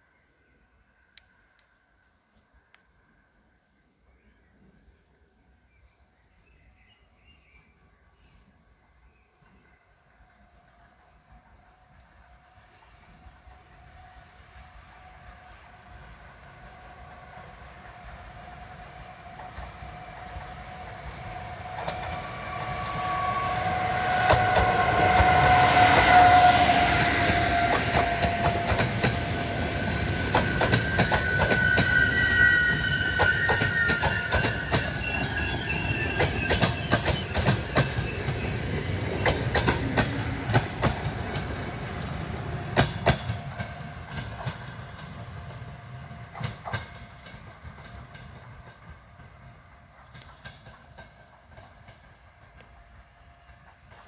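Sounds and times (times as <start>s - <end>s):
train rushing past: 8.8s - 54.0s
locomotive whining tones: 10.2s - 50.0s
wheels clacking over rail joints: 21.6s - 32.1s, 32.7s - 45.7s, 46.3s - 52.5s.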